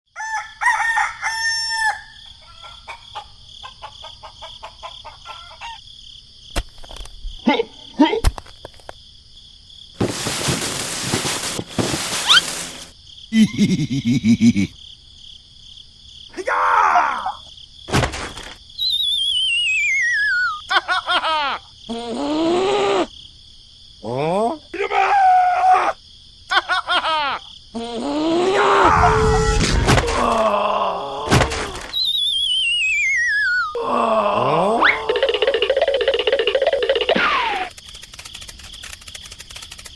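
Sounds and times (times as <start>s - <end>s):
rooster crowing: 0.1s - 3.3s
falling warbling whistle: 18.8s - 20.6s, 31.9s - 33.8s
voice-like groan: 27.8s - 31.8s, 33.8s - 35.4s.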